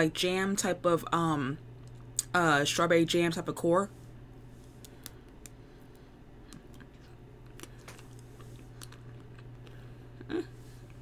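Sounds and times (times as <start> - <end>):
steady low hum: 0.0 - 11.0
crunching and chewing: 4.8 - 11.0.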